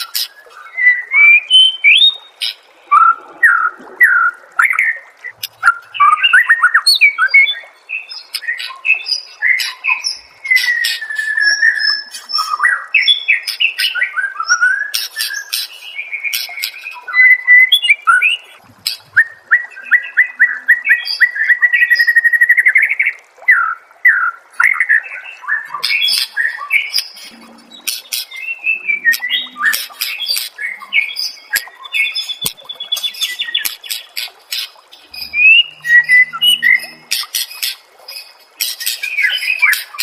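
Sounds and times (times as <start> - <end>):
songbird singing: 0.0 - 40.0
bird trill: 25.8 - 40.0.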